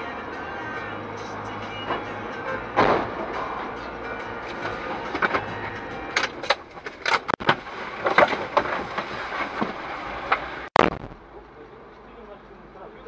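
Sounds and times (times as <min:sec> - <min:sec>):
car road noise: 0:00.0 - 0:13.0
loud sudden bang: 0:02.8 - 0:03.3, 0:10.8 - 0:11.3.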